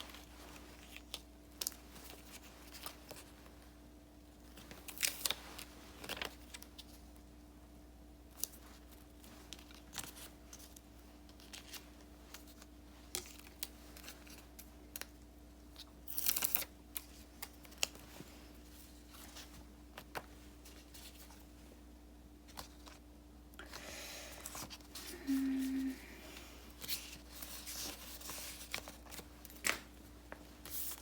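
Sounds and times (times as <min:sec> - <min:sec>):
faint steady hum: 0:00.0 - 0:31.0
paper rustling: 0:26.7 - 0:31.0.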